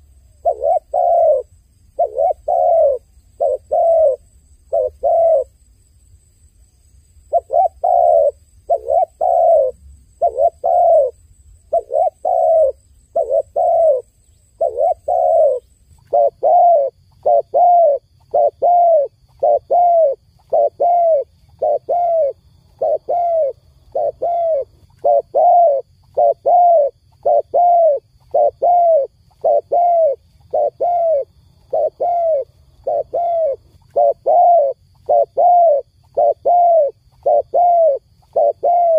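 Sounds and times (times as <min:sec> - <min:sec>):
dove cooing: 0:00.0 - 0:05.5, 0:07.3 - 0:38.9.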